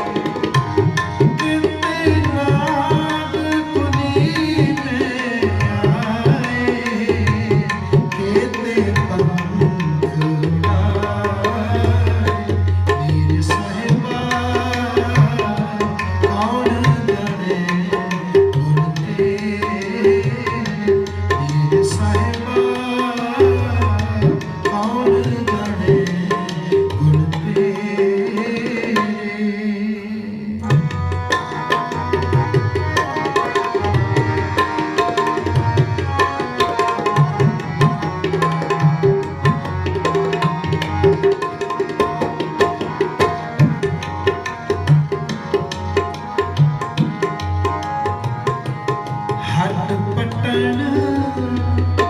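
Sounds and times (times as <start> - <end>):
tabla playing: 0.0 - 29.4, 30.6 - 52.0.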